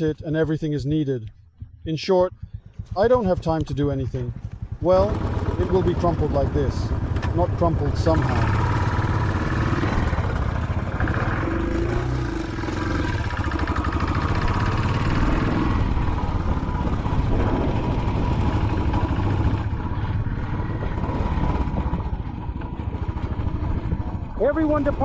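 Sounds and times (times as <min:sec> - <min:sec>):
motorcycle engine running: 0:01.3 - 0:25.0.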